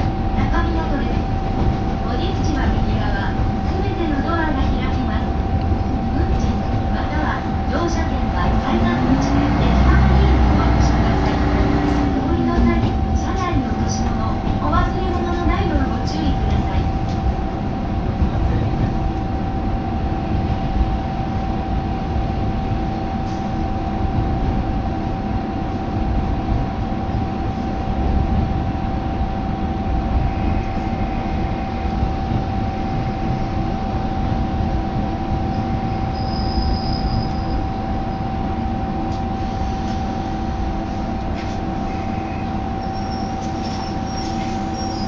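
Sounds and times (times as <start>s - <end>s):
railcar engine and wheels rumbling: 0.0s - 45.0s.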